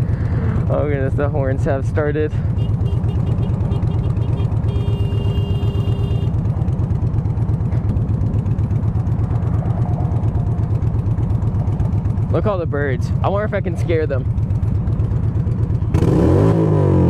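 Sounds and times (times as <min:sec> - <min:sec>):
motorcycle idling: 0:00.0 - 0:16.0
horn steady tone: 0:02.5 - 0:06.5.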